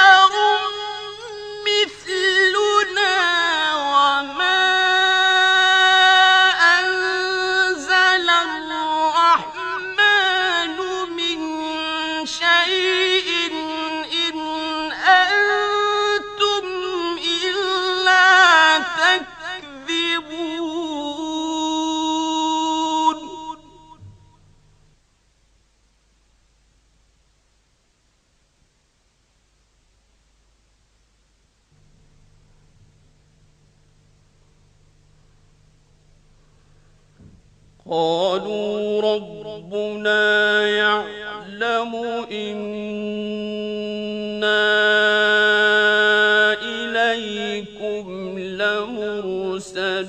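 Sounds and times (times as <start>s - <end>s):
man reciting melodically: 0.0s - 24.4s, 37.8s - 50.0s.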